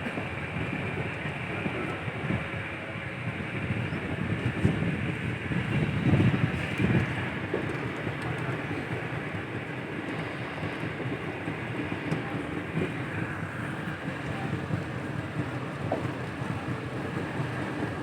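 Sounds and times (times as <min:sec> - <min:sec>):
rail vehicle rumbling on track: 0:00.0 - 0:18.0.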